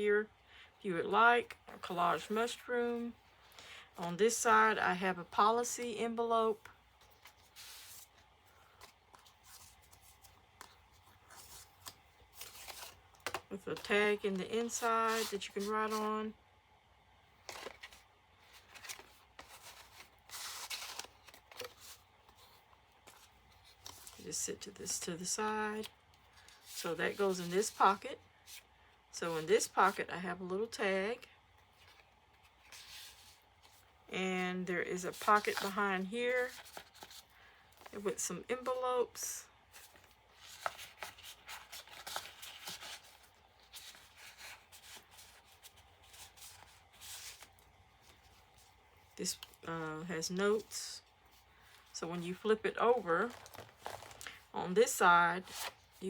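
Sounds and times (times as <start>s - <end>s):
paper rustling and scraping: 14.6s - 16.1s, 17.4s - 24.3s, 35.0s - 38.0s, 39.7s - 48.7s, 52.9s - 54.4s.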